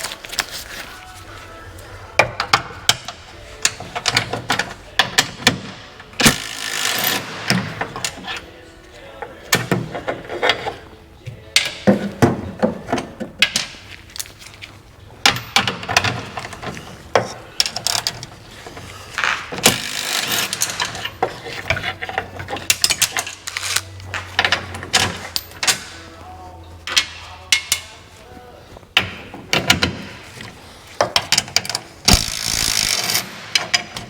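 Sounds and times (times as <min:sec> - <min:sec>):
ratchet wrench clicking: 0:06.2 - 0:07.6, 0:19.7 - 0:21.1, 0:31.4 - 0:33.8
metal clanks and knocks: 0:09.2 - 0:13.9, 0:15.2 - 0:26.2, 0:28.9 - 0:34.0.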